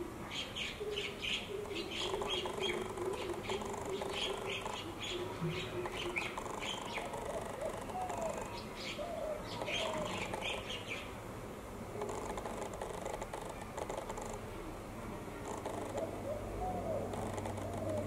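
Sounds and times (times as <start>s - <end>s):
birds chirping: 0.3s - 11.1s
lower arching bird calls: 0.3s - 11.1s, 15.4s - 18.0s.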